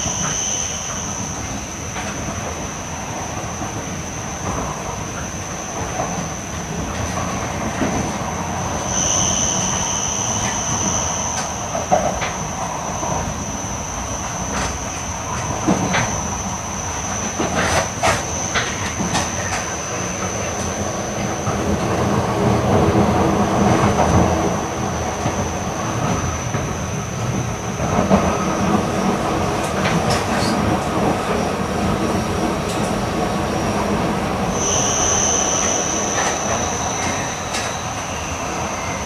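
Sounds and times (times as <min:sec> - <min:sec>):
train wheels rumbling on rail: 0:00.0 - 0:39.0
high whine: 0:07.8 - 0:22.8, 0:32.8 - 0:39.0.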